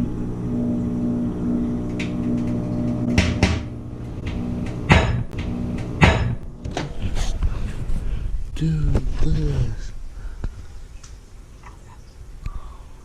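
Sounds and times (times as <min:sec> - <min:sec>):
microwave oven hum: 0:00.0 - 0:07.1.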